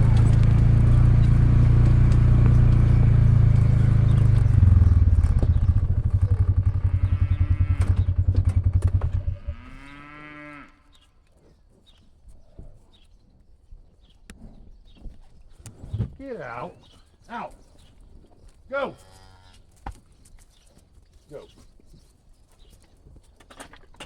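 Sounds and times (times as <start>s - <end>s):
atv engine idling: 0.0s - 9.6s
cattle mooing: 6.9s - 8.0s, 9.3s - 10.8s, 18.9s - 19.6s.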